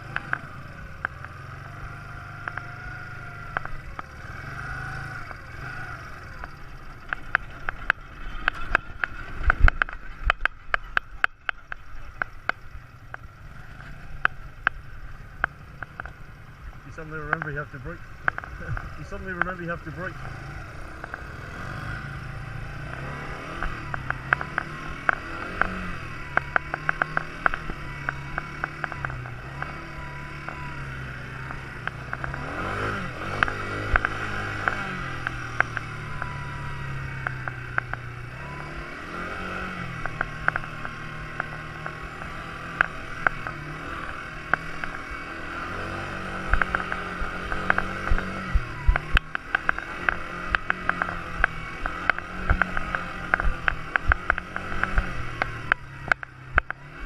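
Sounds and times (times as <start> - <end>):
quad bike engine revving: 0.0 - 57.0
sharp clicks and knocks: 3.5 - 4.1, 6.4 - 14.8, 17.2 - 17.6, 18.2 - 19.8, 22.8 - 30.7, 31.3 - 36.4, 37.0 - 38.2, 39.1 - 57.0.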